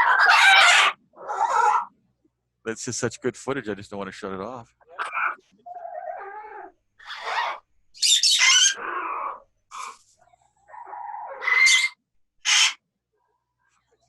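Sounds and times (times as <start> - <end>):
parrots squawking: 0.0 - 1.9, 4.8 - 10.0, 10.8 - 12.8.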